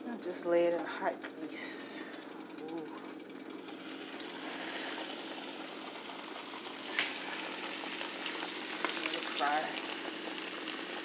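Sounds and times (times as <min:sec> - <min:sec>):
food sizzling in hot grease: 0:03.6 - 0:11.0.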